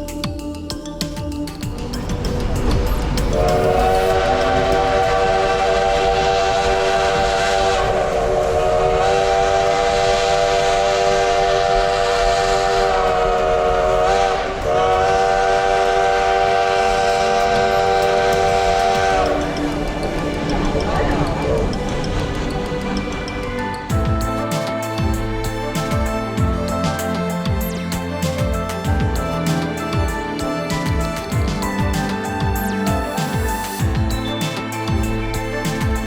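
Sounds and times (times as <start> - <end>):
steam locomotive chime whistle: 3.3 - 21.7.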